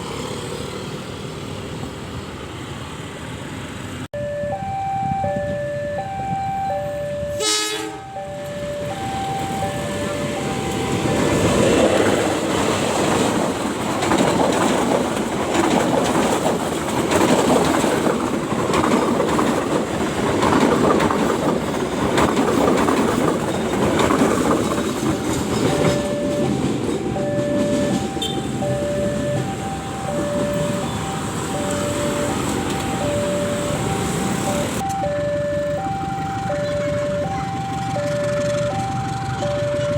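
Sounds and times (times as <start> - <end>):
two-note warning tone: 4.2 - 11.8, 25.1 - 39.9
train wheels rumbling on rails: 5.0 - 39.9.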